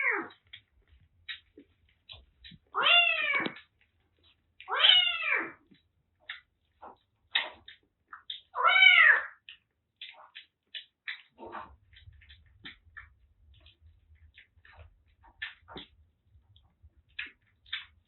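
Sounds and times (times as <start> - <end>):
faint kitten squeaks: 0.0 - 0.6, 2.1 - 3.7, 4.6 - 7.6, 8.2 - 9.5
kittens meowing: 2.7 - 3.6, 4.6 - 5.6, 8.6 - 9.4.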